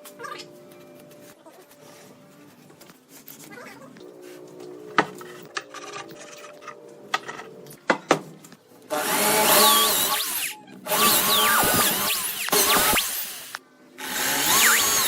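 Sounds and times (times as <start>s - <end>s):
power tool working wood: 8.9s - 15.0s.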